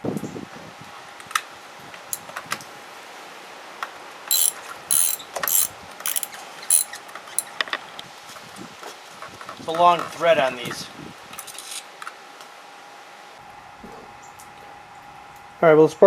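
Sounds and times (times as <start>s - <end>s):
ratchet wrench clicking: 4.3s - 7.0s.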